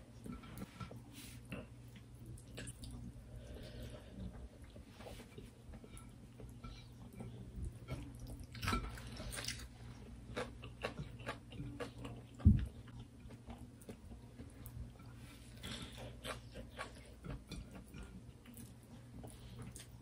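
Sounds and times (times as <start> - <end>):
wet chewing and mouth clicks: 8.2 - 14.9.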